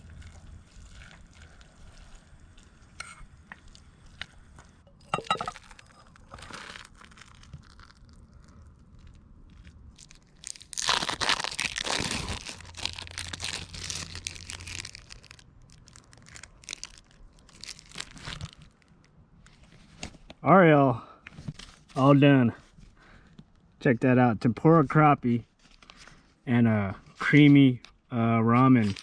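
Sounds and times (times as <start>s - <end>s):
food crackling while cooking: 0.0s - 18.9s.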